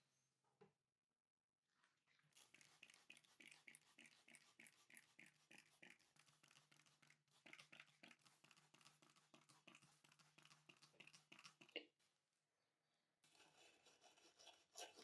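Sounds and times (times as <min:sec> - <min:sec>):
brush scrubbing strokes: 0:02.4 - 0:11.7.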